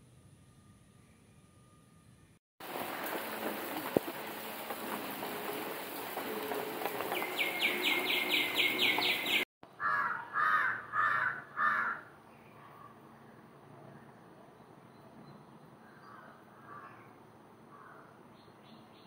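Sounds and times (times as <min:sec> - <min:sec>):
steady hiss: 0:02.6 - 0:09.4
birds chirping: 0:02.8 - 0:17.2
loud bird calls: 0:06.9 - 0:14.2.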